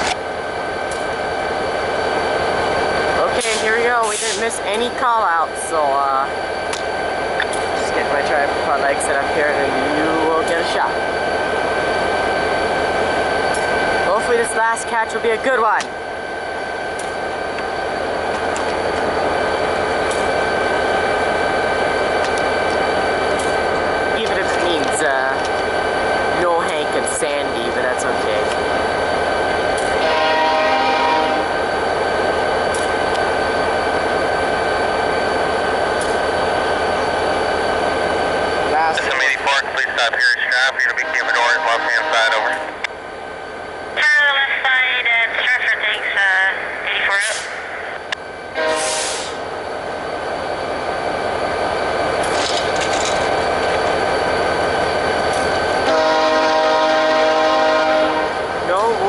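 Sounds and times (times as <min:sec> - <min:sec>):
train rumble: 0:00.0 - 0:59.0
train horn blast: 0:30.0 - 0:31.6, 0:40.9 - 0:42.9, 0:48.6 - 0:49.3, 0:55.8 - 0:58.4.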